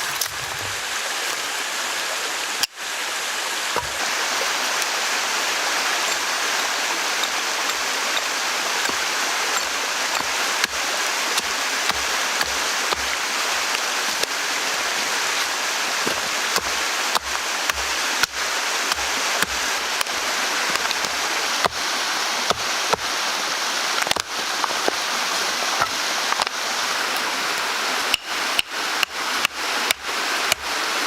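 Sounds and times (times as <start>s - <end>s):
running water rushing: 0.0s - 31.0s.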